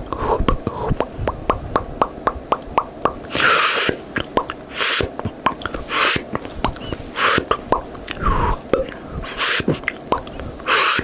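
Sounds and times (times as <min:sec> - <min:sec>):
wet mouth pops: 0:00.4 - 0:09.0, 0:09.6 - 0:10.4
short airy hiss: 0:03.3 - 0:04.1, 0:04.7 - 0:05.2.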